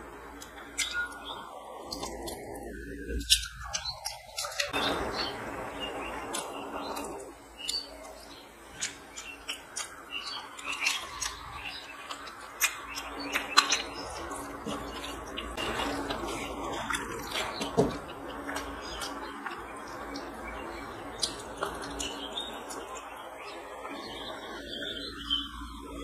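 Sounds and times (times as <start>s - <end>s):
chewing and lip-smacking: 0.3s - 4.8s, 6.2s - 26.0s
fingers squishing rice and gravy: 6.0s - 24.4s.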